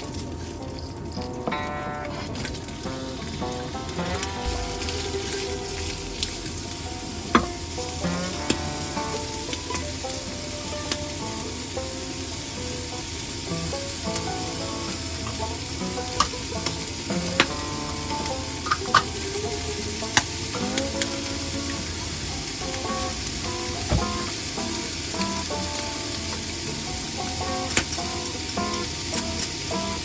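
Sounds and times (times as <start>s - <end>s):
food sizzling in a frying pan: 0.0s - 30.0s
soft background music: 0.0s - 30.0s
utensil striking a pan: 4.0s - 9.8s.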